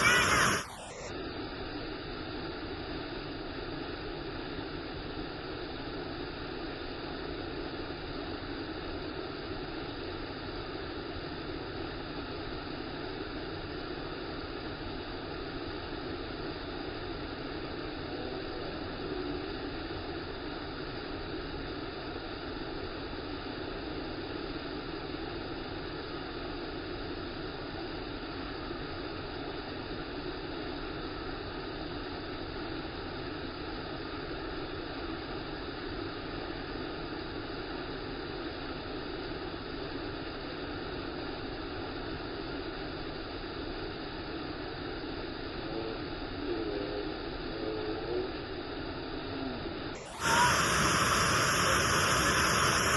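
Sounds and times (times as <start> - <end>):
waterfall roaring: 50.1 - 52.9.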